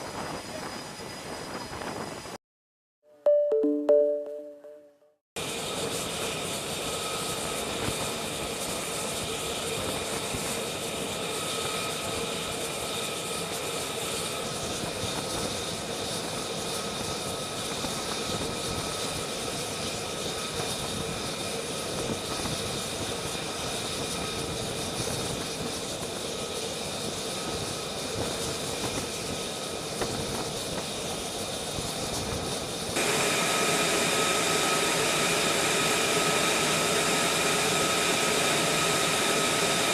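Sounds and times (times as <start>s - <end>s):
jet engine running: 25.3s - 39.9s.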